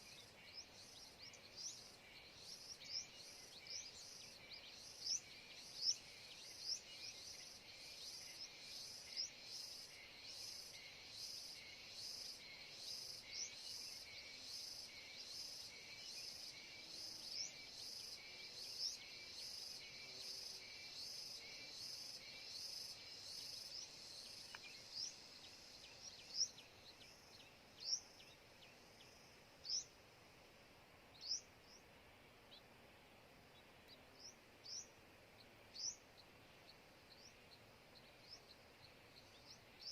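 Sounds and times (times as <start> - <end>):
small bird chirping: 0.0 - 30.0, 31.1 - 31.9, 33.5 - 39.9
faint high insect drone: 0.0 - 39.9.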